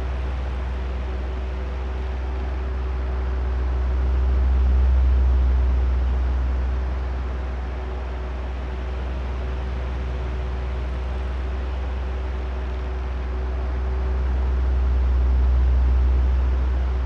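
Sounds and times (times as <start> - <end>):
low motor hum: 0.0 - 17.0.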